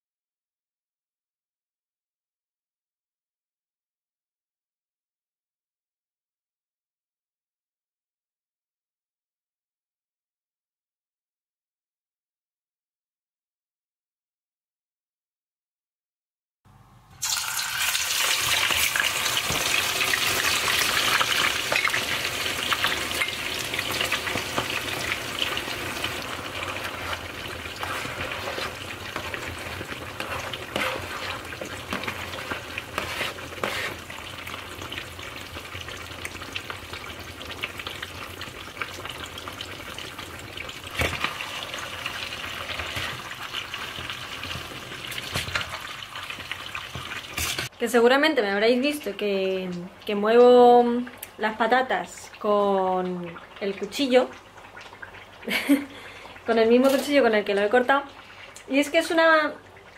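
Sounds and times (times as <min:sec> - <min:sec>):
potatoes sizzling in frying pan: 0:17.2 - 0:47.7, 0:55.3 - 0:59.6
metal knife scraping pan: 0:25.9 - 0:34.1, 0:56.8 - 0:57.3.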